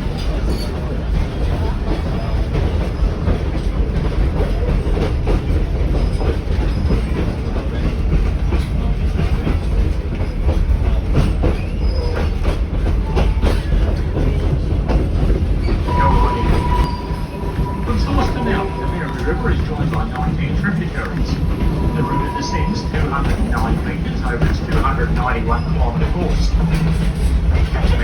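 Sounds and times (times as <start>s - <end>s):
train wheels rumbling on track: 0.0s - 28.0s
thin squeal: 15.9s - 20.3s, 21.0s - 24.0s.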